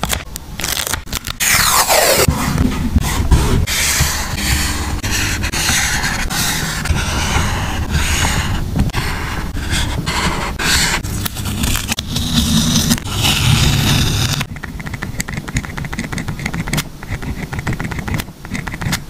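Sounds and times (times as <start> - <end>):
paper scraping and rustling: 0.0 - 14.5.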